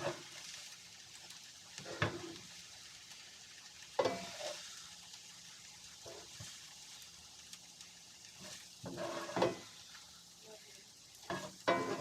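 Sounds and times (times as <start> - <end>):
vegetables sizzling in a frying pan: 0.0 - 12.0
utensil scraping a pan: 1.8 - 2.4, 4.0 - 4.6, 8.4 - 9.8, 11.3 - 12.0.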